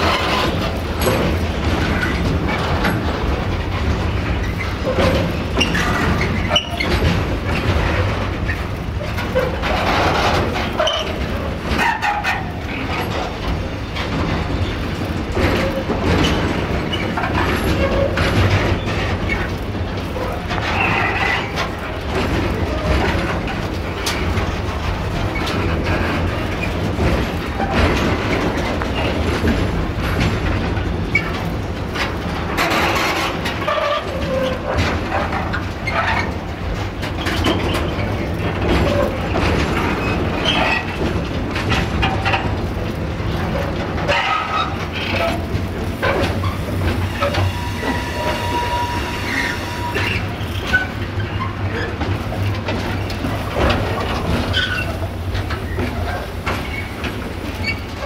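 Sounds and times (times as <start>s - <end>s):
steel wheels rumbling on rails: 0.0s - 58.0s
wheels clicking over rail joints: 0.0s - 58.0s
steady squealing tone: 44.0s - 52.0s.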